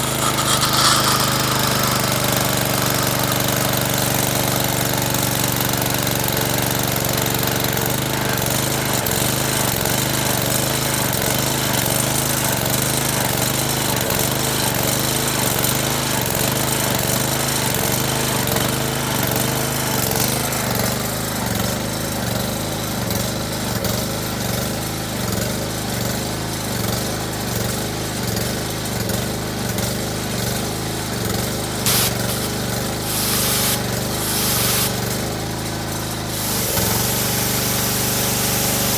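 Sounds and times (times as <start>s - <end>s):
pressure washer engine running: 0.0s - 21.3s, 29.6s - 38.9s.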